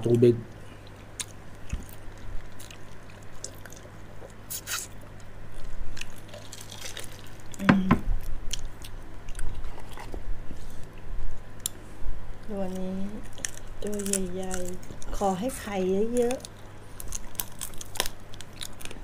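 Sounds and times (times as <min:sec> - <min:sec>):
chewing and biting: 0:00.5 - 0:07.6, 0:08.5 - 0:11.0, 0:13.2 - 0:15.1, 0:16.2 - 0:19.0
wet squishy mouth sounds: 0:00.8 - 0:05.0
small crunches and clicks: 0:00.8 - 0:07.7, 0:12.6 - 0:15.2, 0:16.0 - 0:19.0.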